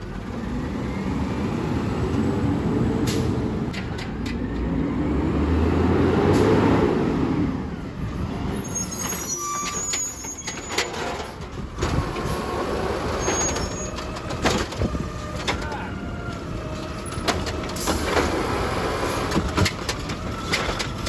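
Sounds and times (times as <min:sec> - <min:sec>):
garbage truck engine: 0:00.0 - 0:21.0
brief high squeals: 0:08.5 - 0:11.0, 0:13.0 - 0:14.0
clanks and knocks: 0:13.3 - 0:18.4, 0:19.3 - 0:21.0.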